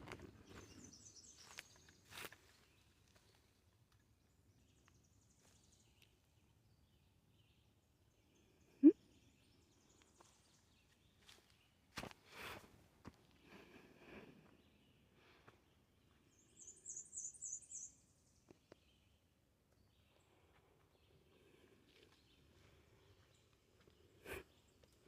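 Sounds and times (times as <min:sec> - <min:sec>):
bird trill: 0:16.6 - 0:18.0.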